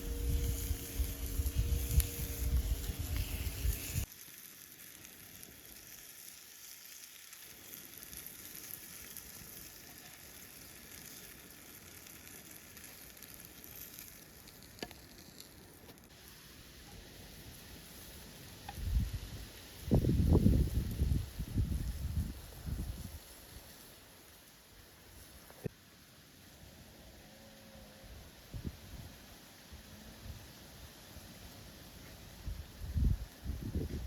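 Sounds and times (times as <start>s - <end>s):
food sizzling on hot stone: 0.0s - 25.6s.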